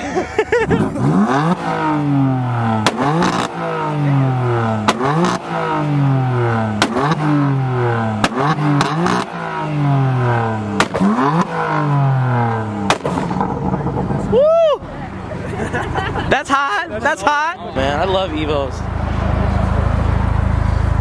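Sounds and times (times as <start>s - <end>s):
car engine revving: 0.0s - 21.0s
exhaust cracks: 0.5s - 17.2s.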